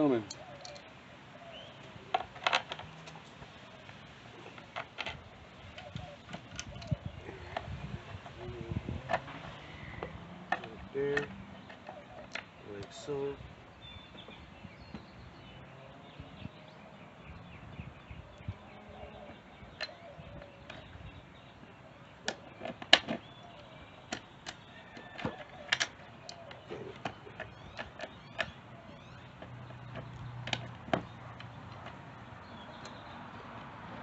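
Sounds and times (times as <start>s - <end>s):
hand tools and metal parts clinking: 0.0s - 0.9s, 10.5s - 13.1s, 19.7s - 21.0s, 29.3s - 32.1s.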